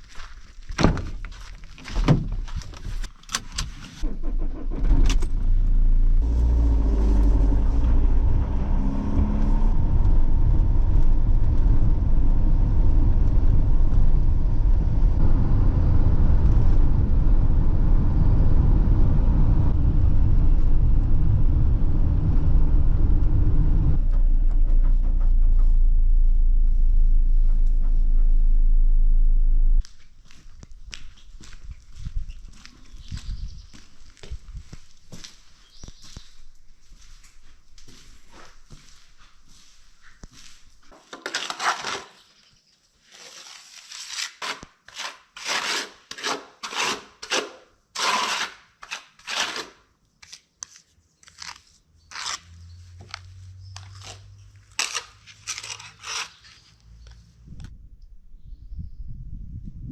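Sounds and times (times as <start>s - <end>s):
car engine rumbling while driving: 4.0s - 29.8s
sharp knocks and clicks: 24.0s - 25.9s.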